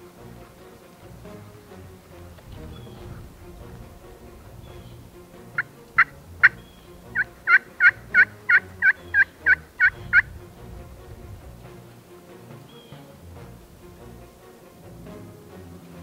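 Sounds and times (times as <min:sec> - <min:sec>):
turkey yelps: 0:05.6 - 0:10.3.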